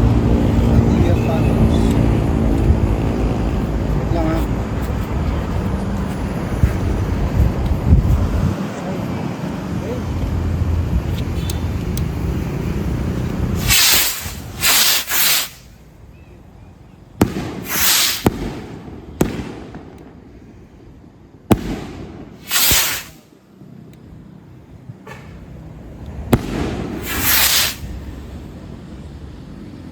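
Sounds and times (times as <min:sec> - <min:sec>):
low rumbling noise: 0:00.0 - 0:11.1
firework hissing rushes: 0:13.4 - 0:15.8, 0:17.2 - 0:19.7, 0:21.5 - 0:23.3, 0:26.3 - 0:28.2
firework bangs: 0:13.6 - 0:15.7, 0:17.2 - 0:20.3, 0:21.5 - 0:23.2, 0:26.3 - 0:28.1.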